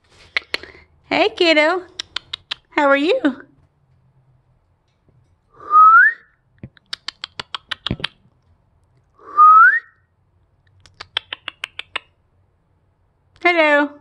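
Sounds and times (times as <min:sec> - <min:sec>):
parrot sharp clicks: 0:01.9 - 0:02.8, 0:06.7 - 0:08.2, 0:10.8 - 0:12.1
parrot rising whistle: 0:05.6 - 0:06.3, 0:09.3 - 0:09.9.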